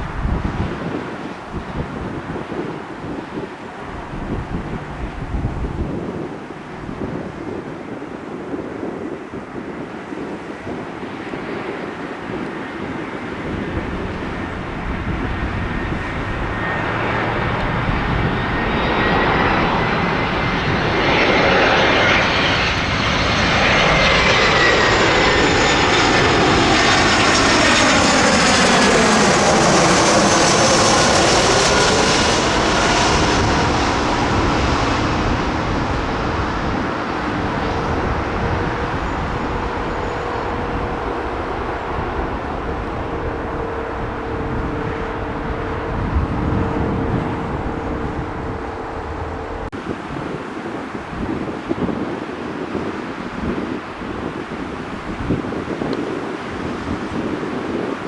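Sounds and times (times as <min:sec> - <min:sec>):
airliner passing overhead: 0:00.0 - 0:58.0
high engine whine: 0:12.6 - 0:49.8.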